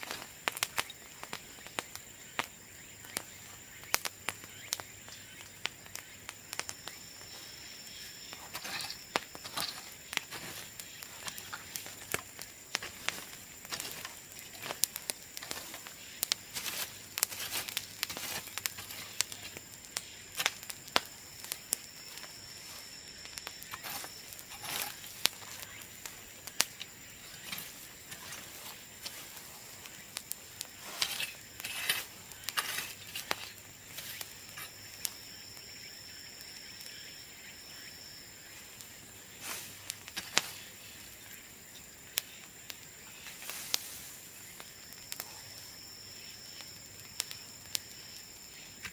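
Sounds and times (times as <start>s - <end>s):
sharp pops and clicks: 0.0s - 37.5s
bamboo bonfire crackling: 0.0s - 48.9s.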